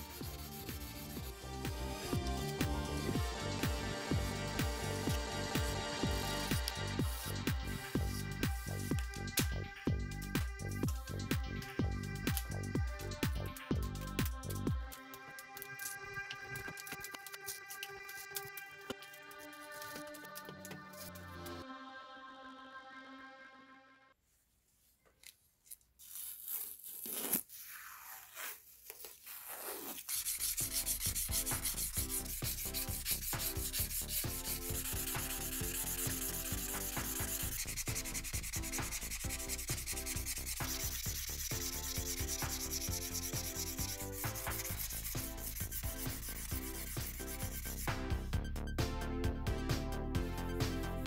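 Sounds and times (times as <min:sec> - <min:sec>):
sandpaper rubbing on knife blade: 0:00.0 - 0:03.0, 0:16.6 - 0:21.6, 0:29.3 - 0:48.1.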